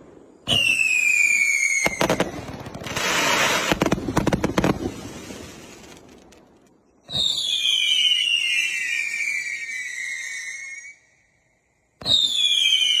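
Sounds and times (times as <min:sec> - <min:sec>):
firework whistle shots: 0:00.4 - 0:03.9, 0:07.0 - 0:11.3, 0:12.0 - 0:13.0.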